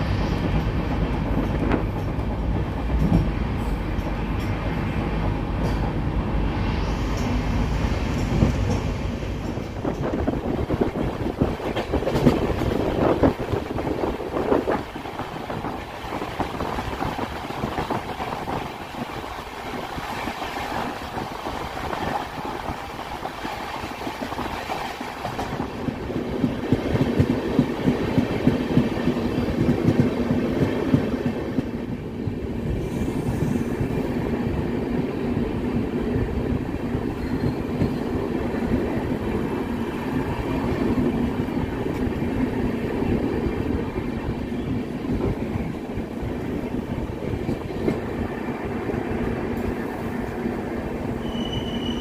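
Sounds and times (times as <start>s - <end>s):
train wheels clattering over rails: 0.4s - 6.0s, 7.1s - 34.1s.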